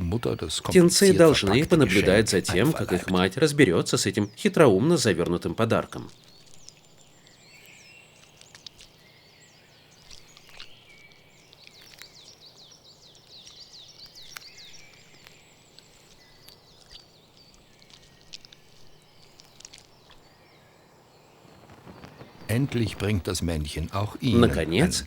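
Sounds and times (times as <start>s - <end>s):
nestlings chirping: 0.0s - 3.4s.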